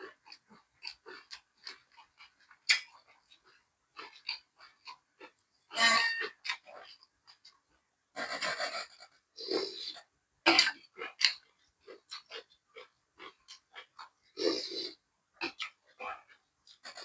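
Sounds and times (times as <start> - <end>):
person chewing food: 0.0 - 5.4, 10.8 - 17.0.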